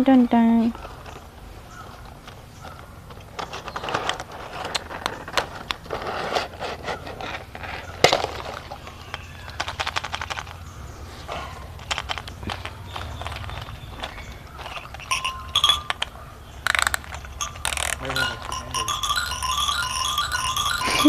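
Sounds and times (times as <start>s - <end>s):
toy packaging crackling: 3.1s - 10.7s, 11.7s - 21.0s.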